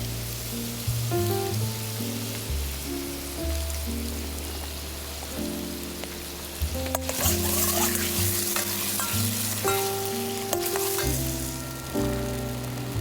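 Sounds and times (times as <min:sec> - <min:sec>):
food sizzling in a frying pan: 0:00.0 - 0:13.0
metal clinks against pan: 0:07.0 - 0:11.3.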